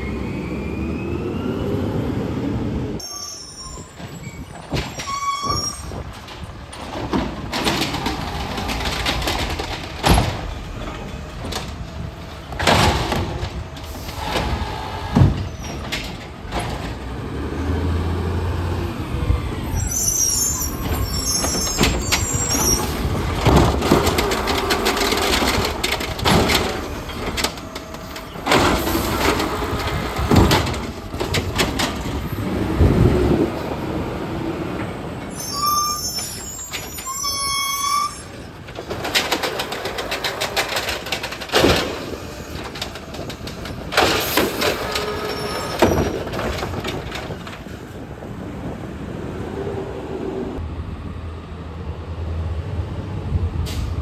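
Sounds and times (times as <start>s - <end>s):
short high squeaks: 3.0s - 6.0s, 19.6s - 23.1s, 35.3s - 38.5s, 45.0s - 46.1s
garbage truck engine running: 3.7s - 54.0s
clanks and bangs: 4.0s - 17.4s, 20.7s - 33.2s, 36.2s - 48.0s.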